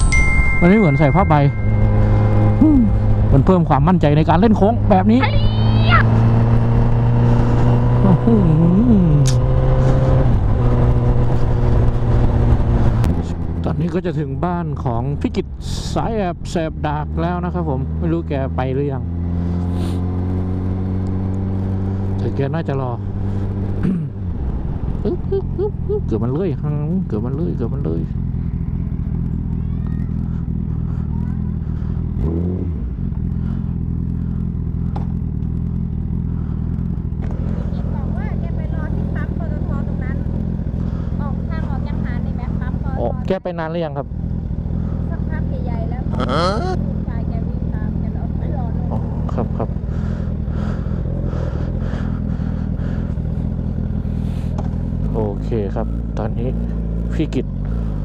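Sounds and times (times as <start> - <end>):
low rushing noise: 0.0 - 3.6
motorcycle engine running: 0.0 - 58.0.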